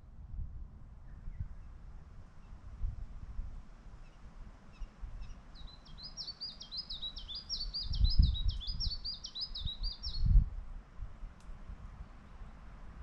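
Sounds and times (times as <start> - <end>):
songbird singing high notes: 4.7 - 10.4.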